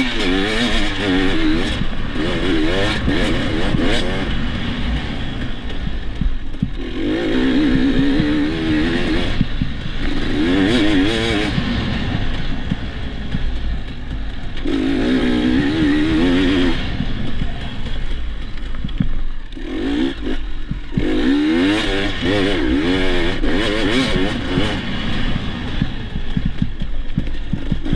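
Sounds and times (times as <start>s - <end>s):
dirt bike engine revving: 0.0s - 27.9s
bike clattering over rough ground: 7.8s - 21.8s.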